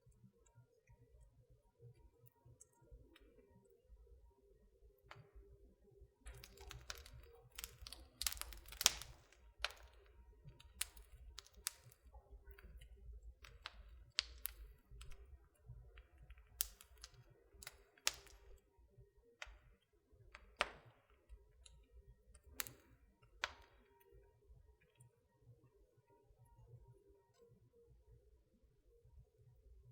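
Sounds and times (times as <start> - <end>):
wood fire crackling: 6.2 - 24.2.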